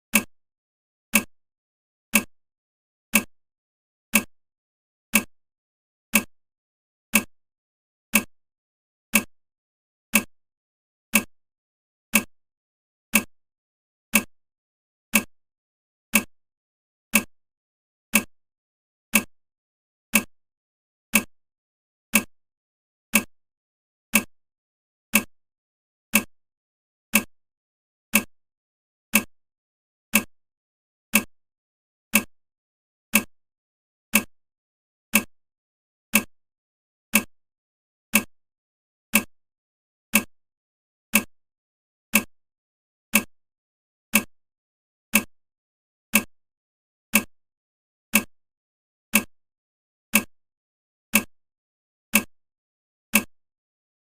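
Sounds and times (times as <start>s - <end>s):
timer ticking: 0.1s - 0.3s, 1.1s - 1.3s, 2.1s - 2.3s, 3.1s - 3.3s, 4.1s - 4.3s, 5.1s - 5.3s, 6.1s - 6.3s, 7.1s - 7.3s, 8.1s - 8.3s, 9.1s - 9.3s, 10.1s - 10.3s, 11.1s - 11.3s, 12.1s - 12.3s, 13.1s - 13.3s, 14.1s - 14.3s, 15.1s - 15.3s, 16.1s - 16.3s, 17.1s - 17.3s, 18.1s - 18.3s, 19.1s - 19.3s, 20.1s - 20.3s, 21.1s - 21.3s, 22.1s - 22.3s, 23.1s - 23.3s, 24.1s - 24.3s, 25.1s - 25.3s, 26.1s - 26.3s, 27.1s - 27.3s, 28.1s - 28.3s, 29.1s - 29.3s, 30.1s - 30.3s, 31.1s - 31.3s, 32.1s - 32.3s, 33.1s - 33.3s, 34.1s - 34.3s, 35.1s - 35.3s, 36.1s - 36.3s, 37.1s - 37.3s, 38.1s - 38.3s, 39.1s - 39.3s, 40.1s - 40.3s, 41.1s - 41.3s, 42.1s - 42.3s, 43.1s - 43.3s, 44.1s - 44.3s, 45.1s - 45.3s, 46.1s - 46.3s, 47.1s - 47.3s, 48.1s - 48.3s, 49.1s - 49.3s, 50.1s - 50.3s, 51.1s - 51.3s, 52.1s - 52.3s, 53.1s - 53.3s.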